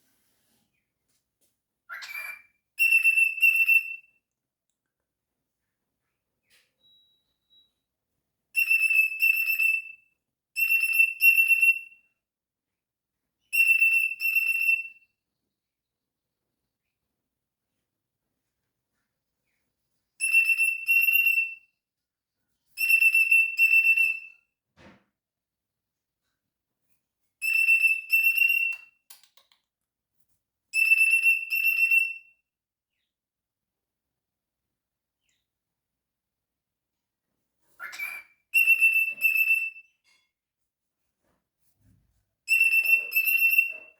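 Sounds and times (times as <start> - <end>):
cockatiel whistled calls: 1.9 - 4.0, 37.8 - 39.7, 42.5 - 43.9.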